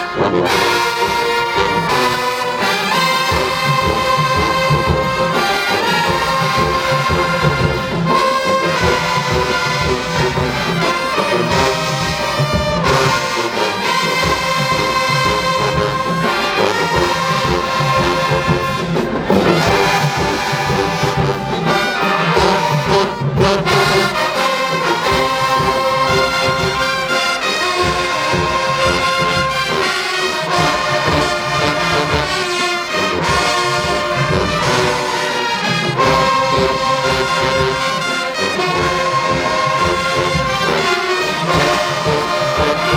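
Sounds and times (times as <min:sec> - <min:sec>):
brass section chords: 0:00.0 - 0:42.9
steady drum beat: 0:00.8 - 0:42.9
bass drums and percussion: 0:16.9 - 0:24.2.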